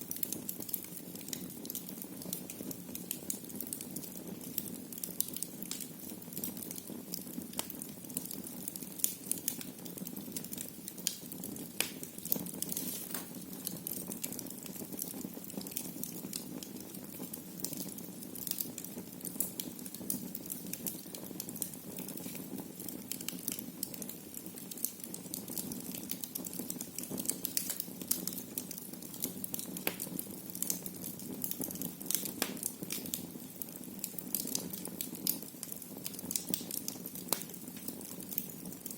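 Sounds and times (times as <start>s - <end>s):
fire crackling and popping: 0.0s - 38.9s.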